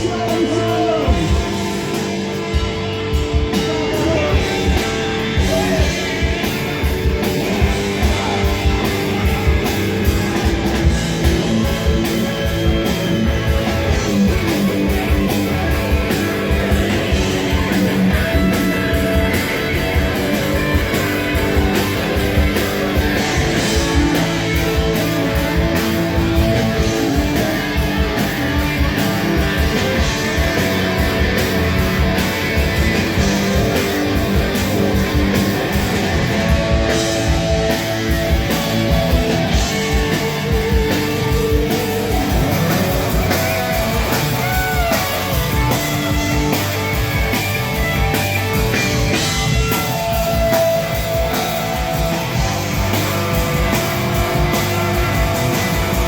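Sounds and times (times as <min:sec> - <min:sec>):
drum kit: 0:00.0 - 0:56.0
electric guitar: 0:00.0 - 0:56.0.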